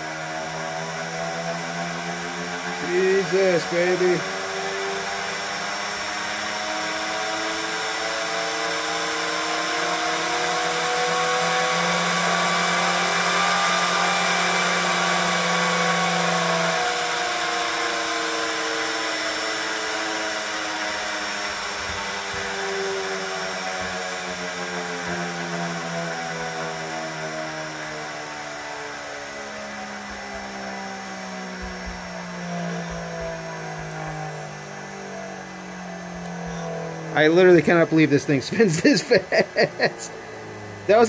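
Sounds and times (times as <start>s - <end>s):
electric motor whine: 0.0s - 41.0s
low motor hum: 0.0s - 41.0s.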